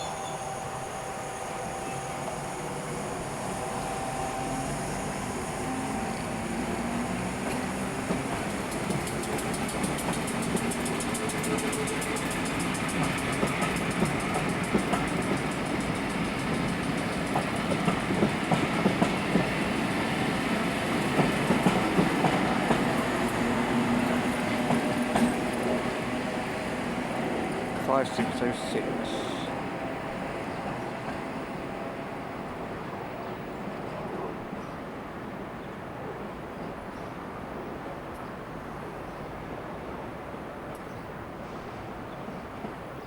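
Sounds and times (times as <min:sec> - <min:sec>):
electric train motors whining: 0:00.0 - 0:18.5
wheels clacking over rail joints: 0:07.0 - 0:28.4.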